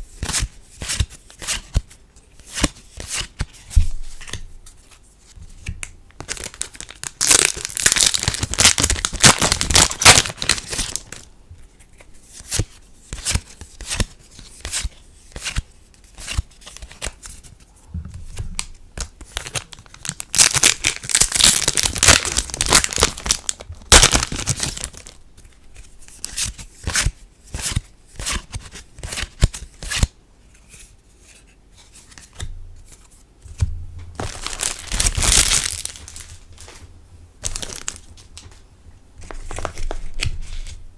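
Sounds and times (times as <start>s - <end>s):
wrappers crinkling and tearing: 6.2s - 11.3s, 19.0s - 25.2s, 34.2s - 38.6s.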